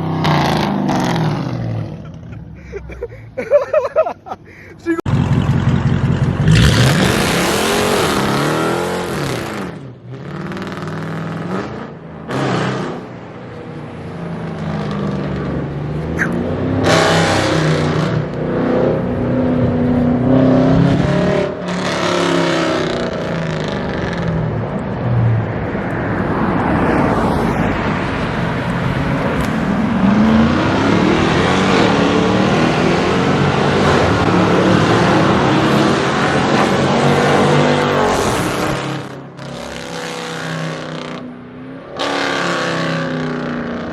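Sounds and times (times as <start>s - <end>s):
car engine revving loudly: 5.1s - 13.1s, 16.3s - 24.4s, 29.3s - 41.2s, 41.8s - 43.9s.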